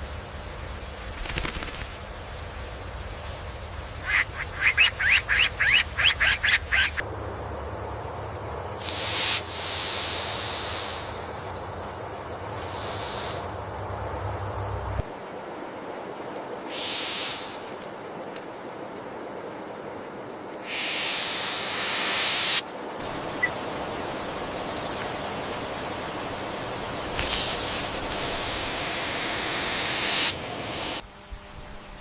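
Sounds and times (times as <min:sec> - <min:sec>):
steady background hiss: 0:00.0 - 0:32.0
loud hissing bursts: 0:08.0 - 0:15.1, 0:16.7 - 0:17.7, 0:20.6 - 0:31.0.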